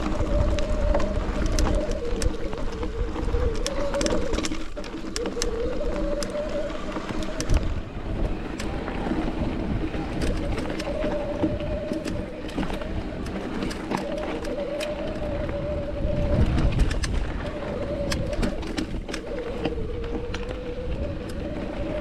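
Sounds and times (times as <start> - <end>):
bike whirring hum: 0.0 - 22.0.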